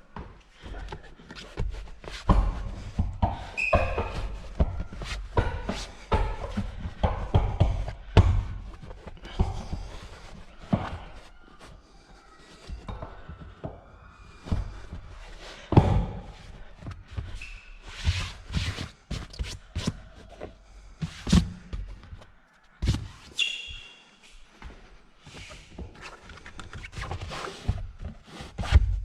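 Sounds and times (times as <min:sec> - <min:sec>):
brief squeaks: 0:23.3 - 0:24.2.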